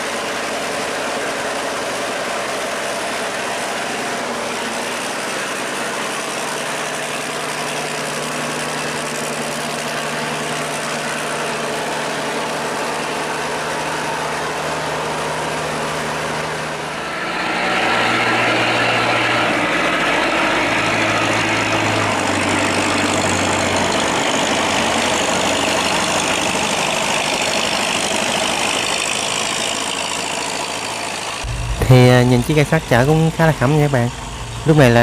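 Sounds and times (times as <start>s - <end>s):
boat engine running: 0.0s - 35.0s.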